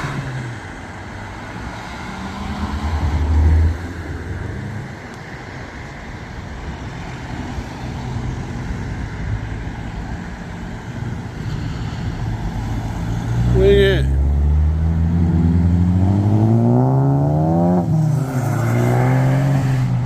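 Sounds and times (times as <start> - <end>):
traffic noise: 0.0 - 20.0
car driving past: 11.4 - 20.0.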